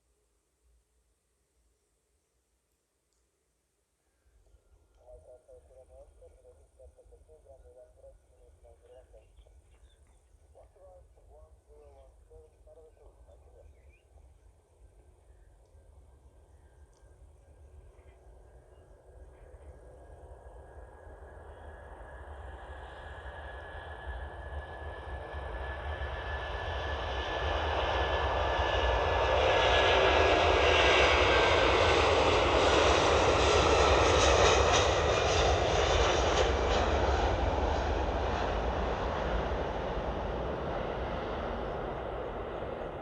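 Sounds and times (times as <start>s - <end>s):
high engine whine: 4.5s - 43.0s
jet engines roaring: 19.6s - 43.0s.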